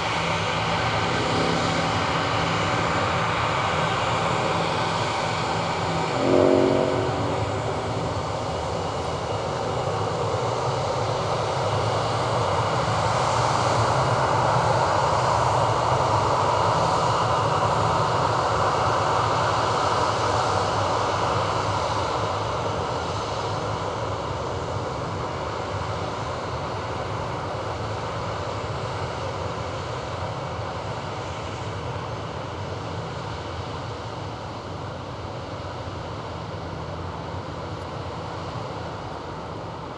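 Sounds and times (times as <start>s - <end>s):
jet engines running: 0.0s - 15.4s
short pitched sound: 0.8s - 9.9s.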